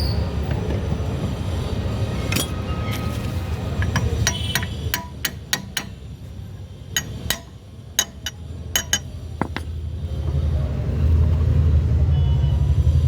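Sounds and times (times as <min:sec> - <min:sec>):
sharp metallic clinks: 0:03.7 - 0:06.2, 0:06.9 - 0:09.2.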